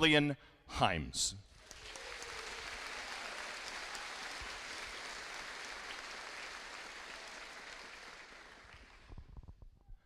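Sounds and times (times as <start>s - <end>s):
audience applauding: 1.5s - 9.3s.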